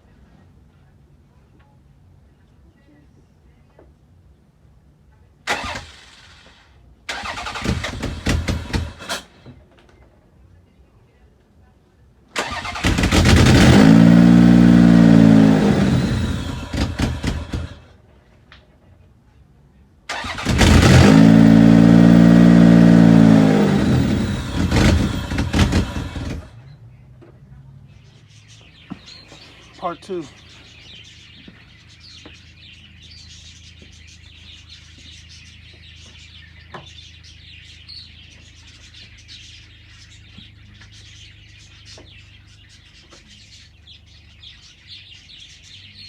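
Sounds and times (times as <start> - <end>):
engine starter cranking: 5.5 - 9.6, 12.4 - 17.9, 20.1 - 26.8.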